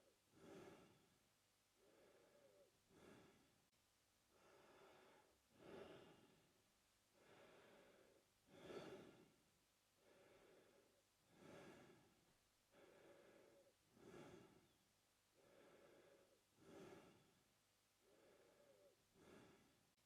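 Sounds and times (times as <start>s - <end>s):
man breathing through mouth: 0.4s - 1.0s, 1.8s - 3.5s, 4.3s - 6.4s, 7.2s - 9.3s, 10.0s - 12.1s, 12.7s - 14.7s, 15.4s - 17.3s, 18.0s - 19.8s.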